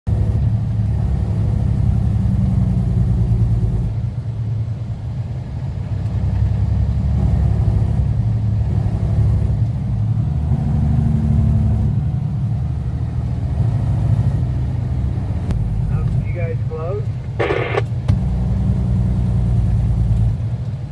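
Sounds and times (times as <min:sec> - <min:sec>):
diesel engine droning: 0:00.1 - 0:20.9.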